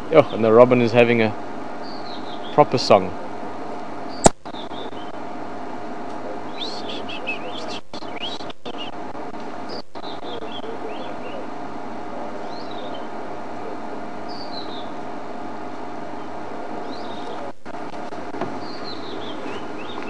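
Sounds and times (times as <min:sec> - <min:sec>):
steady low hum: 0:00.0 - 0:20.0
robin singing whistled notes: 0:01.8 - 0:02.6, 0:06.5 - 0:08.9, 0:09.7 - 0:11.5, 0:12.4 - 0:13.1, 0:18.6 - 0:20.0.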